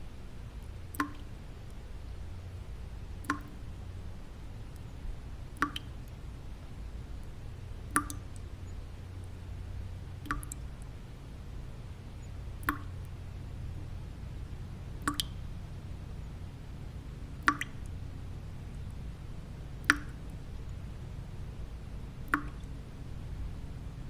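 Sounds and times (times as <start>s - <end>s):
low white noise: 0.0s - 24.0s
water drops plopping: 0.9s - 1.3s, 3.2s - 3.6s, 5.6s - 6.2s, 7.9s - 8.4s, 10.2s - 10.7s, 12.6s - 13.1s, 15.0s - 15.4s, 17.4s - 18.0s, 19.8s - 20.3s, 22.3s - 22.8s.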